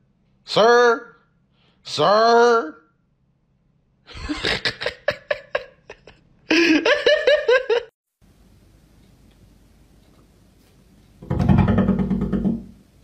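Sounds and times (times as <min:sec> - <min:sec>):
person laughing: 0:04.1 - 0:07.9.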